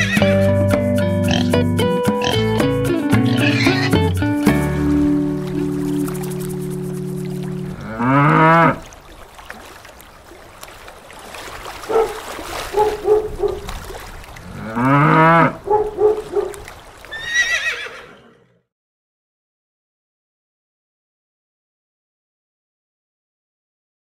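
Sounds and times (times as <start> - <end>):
horse whinny: 0.0 - 0.5, 3.3 - 4.0, 17.1 - 18.6
cattle grunting: 1.3 - 1.6, 7.6 - 8.8
cattle mooing: 1.3 - 1.6, 3.3 - 4.0, 7.6 - 8.9, 14.5 - 16.5.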